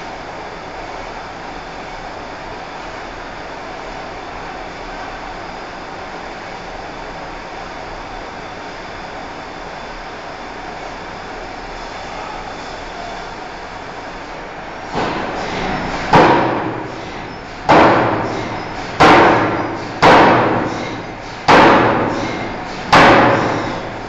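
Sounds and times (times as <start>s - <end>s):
hammer striking steel bar: 16.1s - 23.9s.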